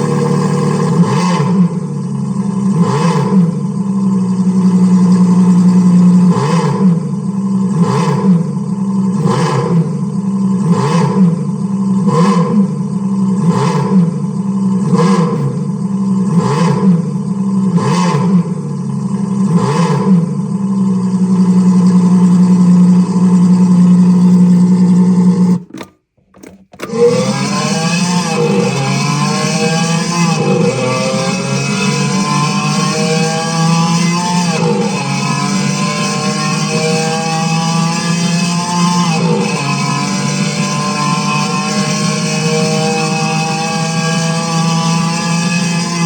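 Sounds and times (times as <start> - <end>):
car engine idling and revving: 0.0 - 46.0.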